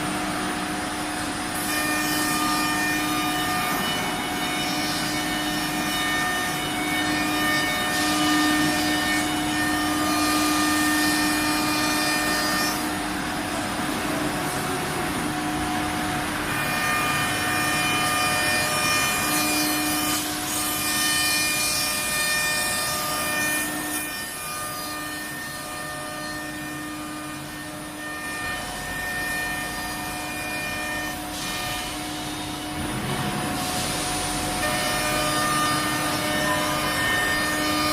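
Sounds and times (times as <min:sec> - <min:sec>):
saw whine: 0:00.0 - 0:37.9.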